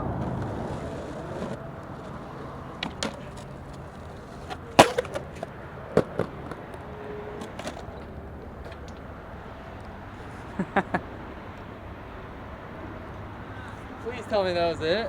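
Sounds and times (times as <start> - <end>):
skateboard clacks: 0.0 - 9.2
skateboard rolling: 0.0 - 12.3.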